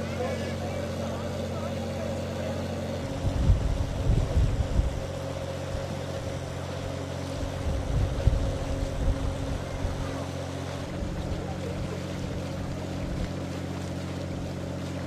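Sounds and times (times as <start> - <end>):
boat engine running: 0.0 - 15.0
wind buffeting microphone: 3.0 - 6.6, 7.3 - 10.1.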